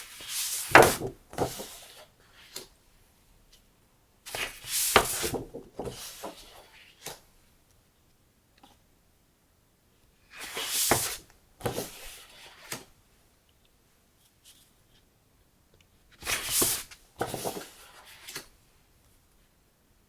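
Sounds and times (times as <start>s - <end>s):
paper rustling: 16.2s - 18.5s.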